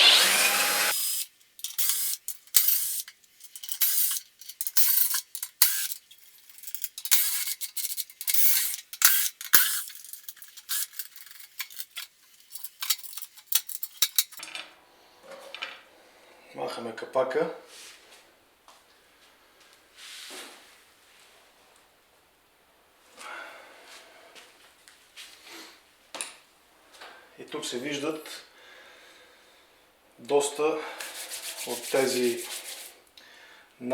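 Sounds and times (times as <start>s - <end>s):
power drill: 0.0s - 3.0s.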